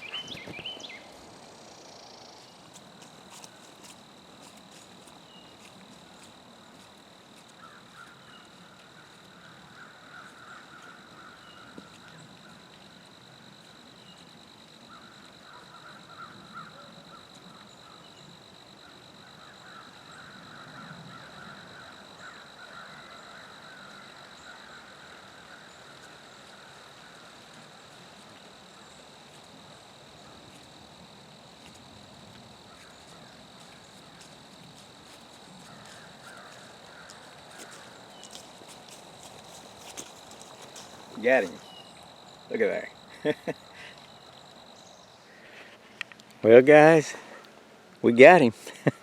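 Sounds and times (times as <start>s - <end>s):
high steady insect trill: 0.0s - 49.0s
faint clicks: 45.9s - 46.4s.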